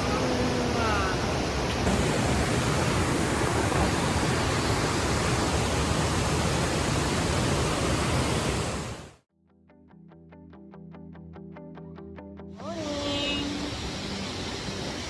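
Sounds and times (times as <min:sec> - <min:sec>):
waterfall rushing water: 0:00.0 - 0:09.2, 0:12.8 - 0:15.0.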